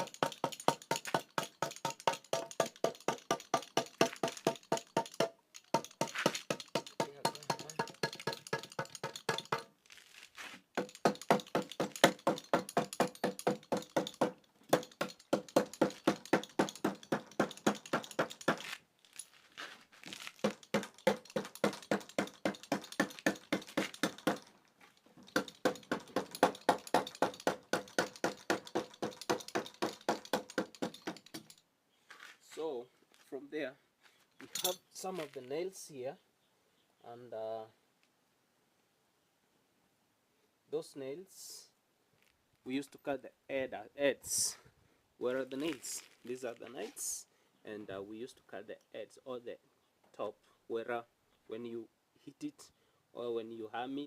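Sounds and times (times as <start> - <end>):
rapid hammer blows on wood: 0.0 - 9.7, 10.8 - 18.7, 20.4 - 24.5, 25.3 - 31.5.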